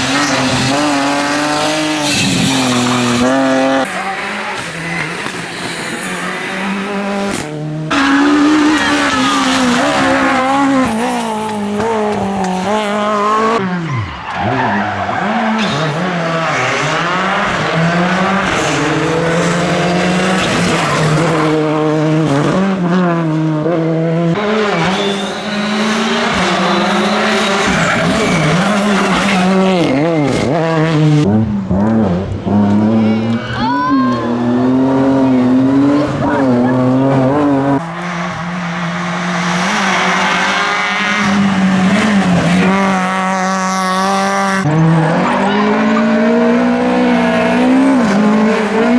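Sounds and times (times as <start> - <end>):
tyre squeal: 0.0 - 7.0, 7.9 - 12.7, 24.4 - 31.2, 33.0 - 34.1
rally car engines revving: 0.0 - 48.9.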